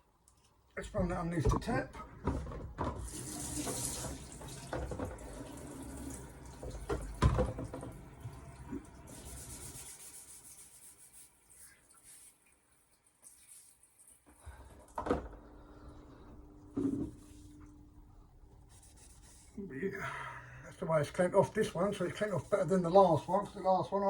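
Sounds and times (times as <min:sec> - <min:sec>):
tap water running over stone: 0:02.8 - 0:10.7.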